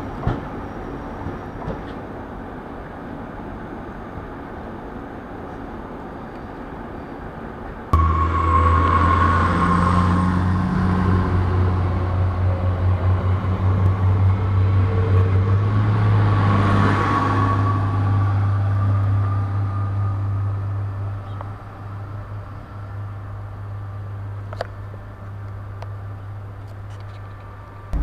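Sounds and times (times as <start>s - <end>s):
train rolling noise: 0.0s - 6.1s, 8.0s - 28.0s
train engine humming: 8.0s - 28.0s.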